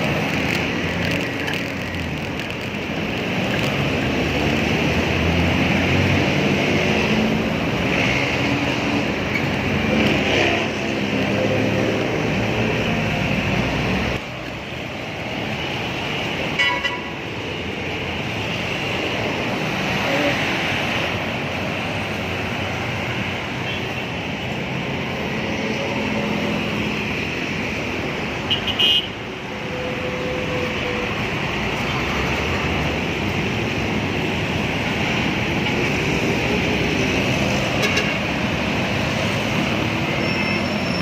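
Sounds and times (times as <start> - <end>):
street traffic: 0.0 - 41.0.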